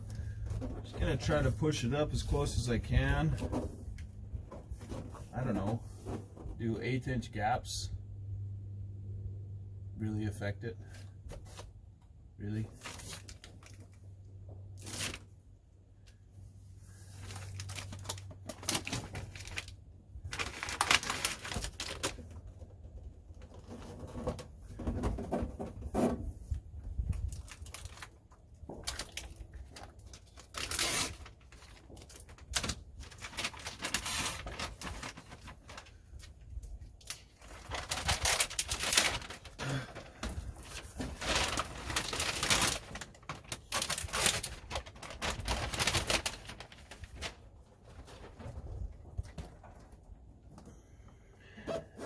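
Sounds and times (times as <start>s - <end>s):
mat rustling and crinkling: 27.2s - 36.4s, 37.0s - 50.2s.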